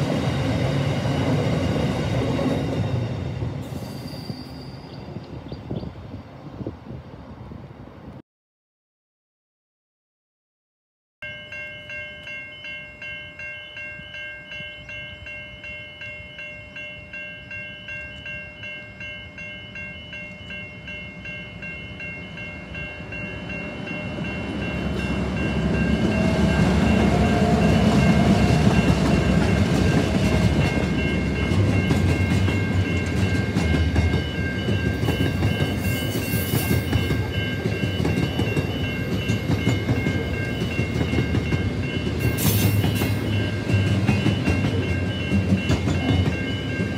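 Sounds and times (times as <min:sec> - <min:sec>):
diesel locomotives passing: 0:00.0 - 0:08.2, 0:11.2 - 0:46.9
level crossing bells ringing: 0:11.2 - 0:46.9
wagons clicking over rail joints: 0:27.9 - 0:46.9.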